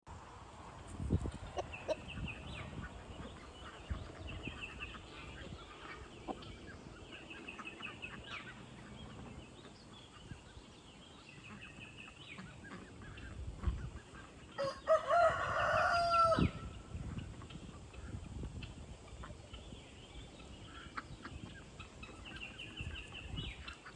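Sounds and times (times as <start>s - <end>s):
rooster crowing: 14.6s - 16.7s.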